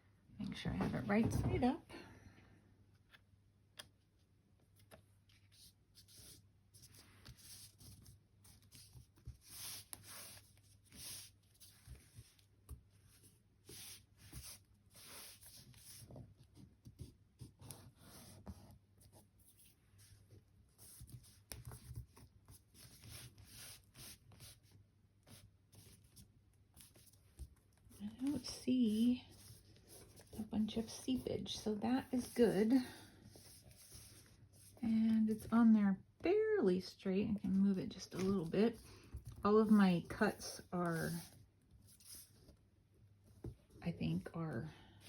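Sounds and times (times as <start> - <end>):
hands rubbing paper: 5.3 - 35.5, 38.0 - 42.4.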